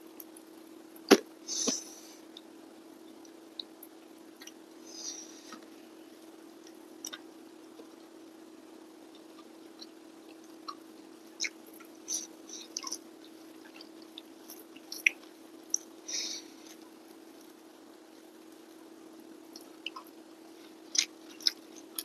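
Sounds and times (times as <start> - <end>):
steady low hum: 0.0 - 22.0
chewing with wet smacks: 3.1 - 4.6, 5.5 - 8.2, 9.0 - 17.6, 19.5 - 22.0.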